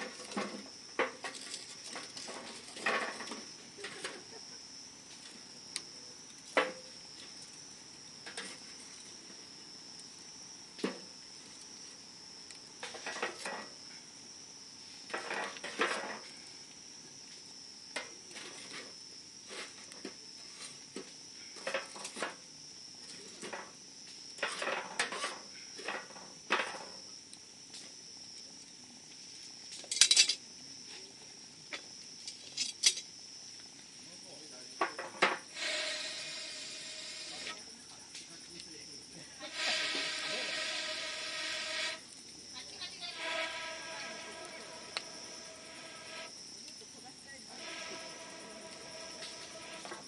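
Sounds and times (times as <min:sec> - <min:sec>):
campfire crackling and popping: 0:00.0 - 0:13.5, 0:39.4 - 0:46.8
high thin tone: 0:39.4 - 0:42.0, 0:42.9 - 0:46.3, 0:47.5 - 0:50.0.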